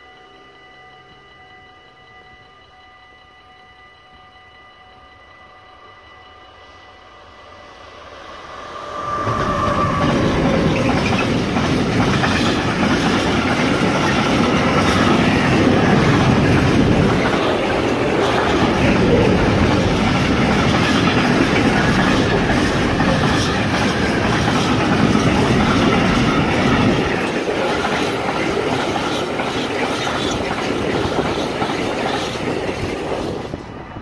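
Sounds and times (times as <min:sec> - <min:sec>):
train wagons rumbling past: 0:06.6 - 0:34.0
train wheels clicking: 0:07.8 - 0:34.0.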